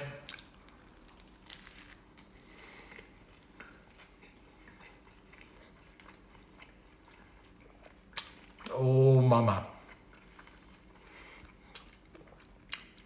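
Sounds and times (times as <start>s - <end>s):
biting and chewing crispy bread: 0.1s - 8.8s.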